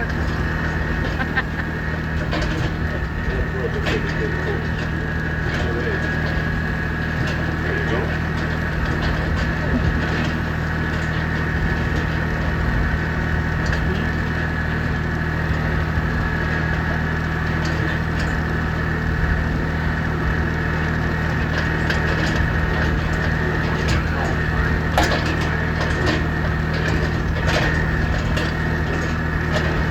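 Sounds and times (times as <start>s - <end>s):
tractor engine running: 0.0s - 29.9s.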